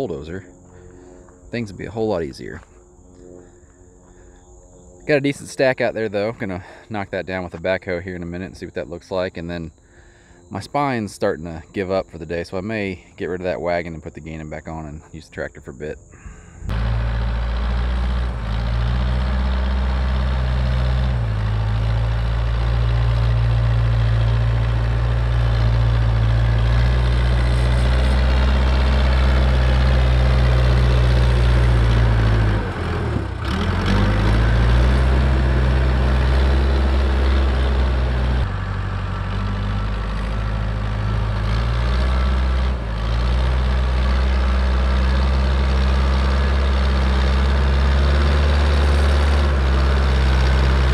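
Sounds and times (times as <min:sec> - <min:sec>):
diesel farm machinery engine running: 0:16.2 - 0:50.9.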